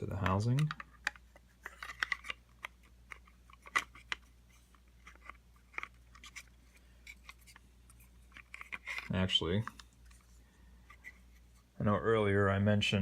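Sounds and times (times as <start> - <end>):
light plastic clicks and taps: 0.2 - 4.2.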